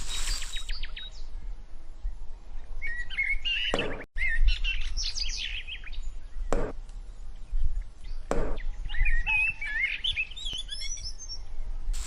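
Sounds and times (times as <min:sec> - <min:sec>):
small birds chirping: 0:00.0 - 0:01.4, 0:02.6 - 0:12.0
sharp knocks: 0:06.5 - 0:06.8, 0:08.3 - 0:08.6.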